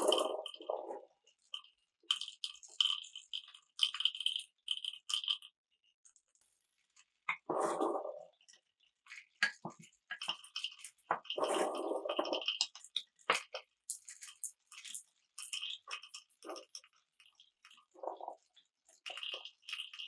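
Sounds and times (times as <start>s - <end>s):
marbles clacking through a marble run: 0.0s - 0.8s
marbles rolling: 0.0s - 1.0s.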